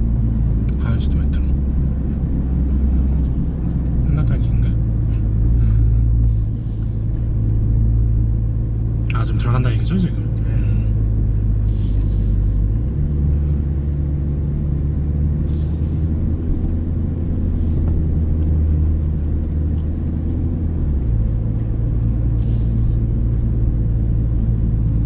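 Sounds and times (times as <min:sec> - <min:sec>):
car engine running at low revs: 0:00.0 - 0:25.0.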